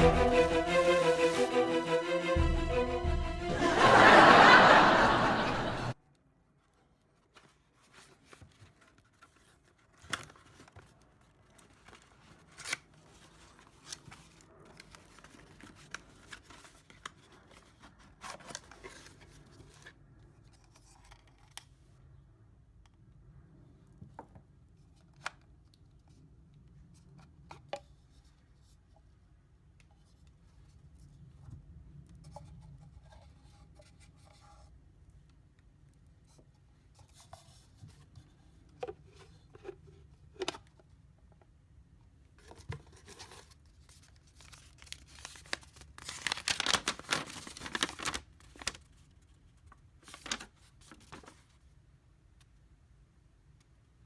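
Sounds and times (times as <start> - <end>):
tearing and crinkling: 44.0 - 48.9, 50.1 - 51.3
packaging being torn open: 44.4 - 48.8.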